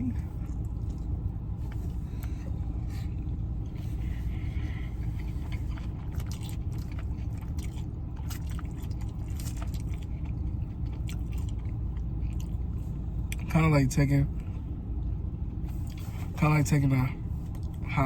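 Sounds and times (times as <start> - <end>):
steady low rumble: 0.0 - 18.0
chewing and biting food: 0.1 - 13.5, 14.4 - 16.4, 17.3 - 17.9.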